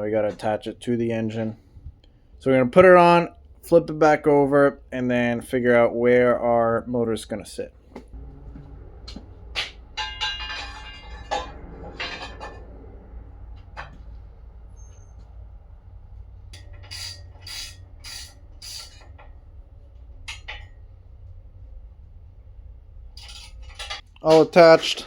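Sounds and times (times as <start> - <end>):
low steady hum: 0.0 - 25.0
ringing rattle: 9.9 - 13.4, 23.2 - 24.1
metal clinks and clatter: 10.0 - 13.2.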